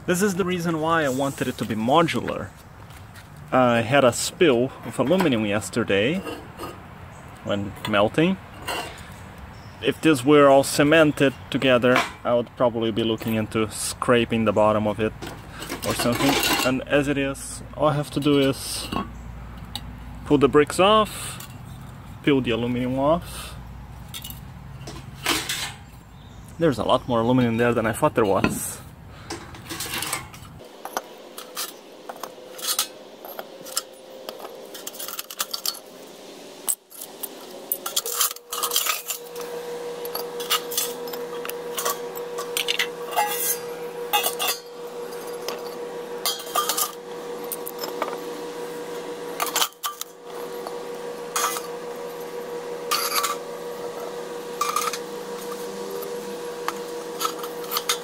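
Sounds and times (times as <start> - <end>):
metal clinks and scrapes: 6.0 - 6.8, 7.8 - 9.6, 15.2 - 16.8, 24.0 - 26.0, 28.2 - 36.0, 36.6 - 48.2, 49.4 - 54.0, 54.6 - 56.1, 57.1 - 58.0.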